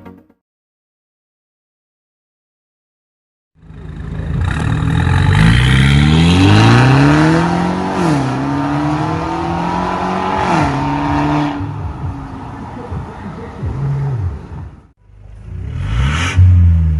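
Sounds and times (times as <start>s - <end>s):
car engine revving: 3.6s - 16.9s.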